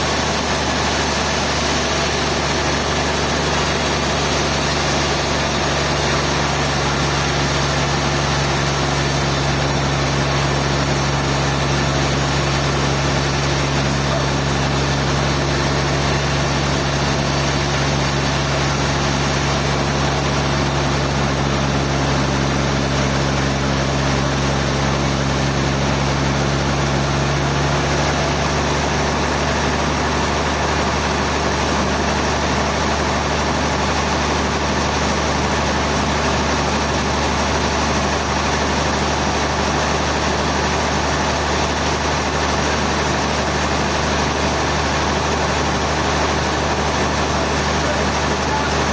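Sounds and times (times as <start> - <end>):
sawmill machinery humming: 0.0 - 48.9.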